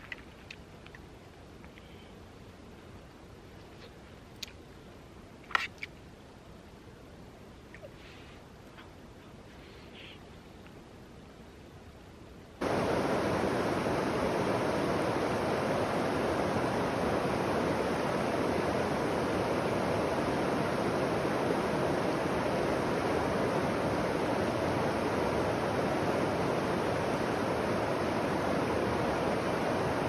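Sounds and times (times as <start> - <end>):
steady rushing noise: 12.6 - 30.0.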